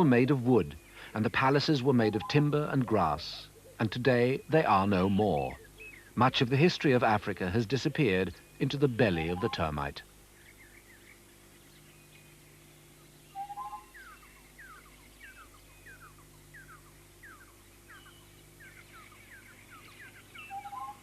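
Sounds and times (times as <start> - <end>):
barbets chirping: 0.0 - 21.0
two-note bird call: 2.0 - 6.0, 8.8 - 9.9, 13.3 - 21.0.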